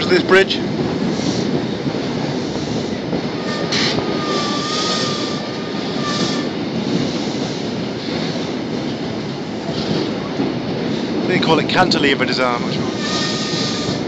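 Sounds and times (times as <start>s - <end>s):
train rumbling over a bridge: 0.0s - 14.0s.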